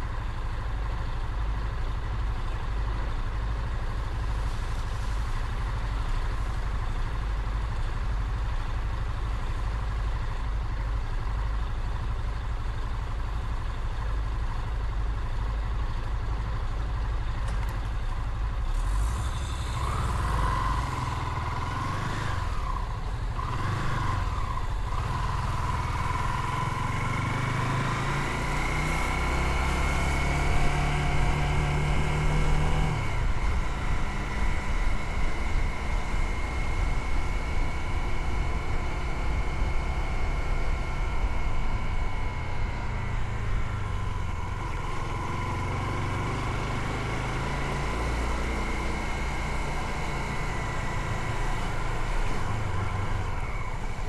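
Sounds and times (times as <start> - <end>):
wind: 0.0 - 54.0
motorcycle engine revving: 18.8 - 54.0.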